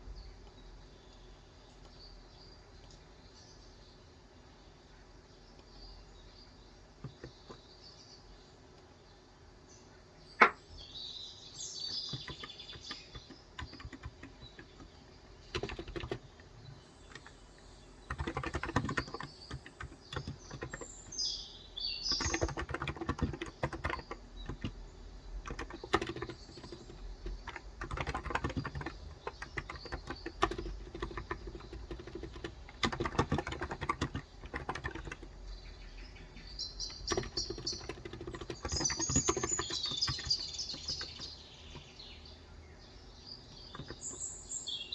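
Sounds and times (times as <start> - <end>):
small birds chirping: 0.0 - 44.9
typing on keyboard: 7.0 - 7.6, 11.9 - 21.3, 22.0 - 35.4, 36.8 - 41.4, 43.7 - 44.2.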